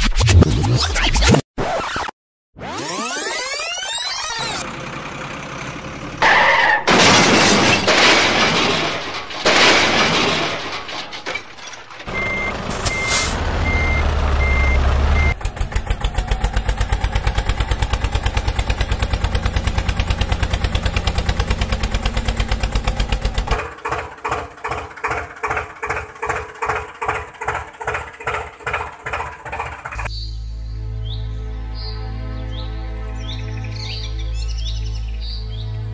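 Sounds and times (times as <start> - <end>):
truck engine chugging: 4.6 - 6.8, 12.0 - 30.1
reversing beeper beeping: 12.1 - 15.4.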